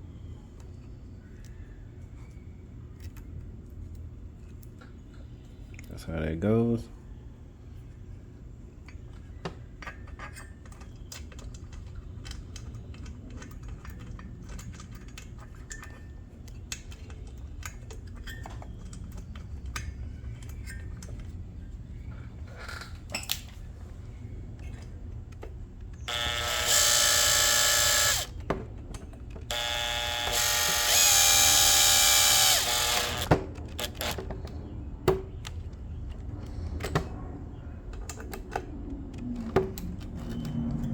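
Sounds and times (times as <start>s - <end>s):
parts clicking and knocking: 24.6s - 36.2s
power tool motor whining: 26.1s - 28.4s, 29.4s - 34.3s.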